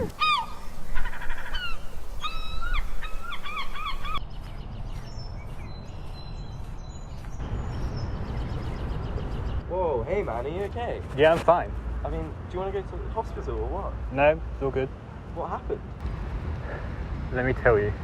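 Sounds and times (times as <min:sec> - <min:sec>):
gulls calling: 0:00.0 - 0:04.2.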